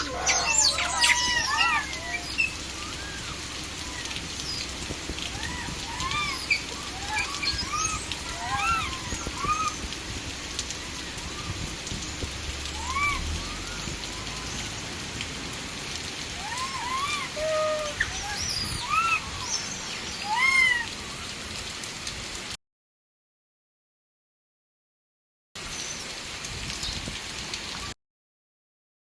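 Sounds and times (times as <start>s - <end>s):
calls rising and falling in pitch: 0.0s - 9.9s, 12.6s - 15.3s, 16.1s - 21.0s
heavy rain pouring: 0.0s - 22.6s, 25.6s - 28.0s.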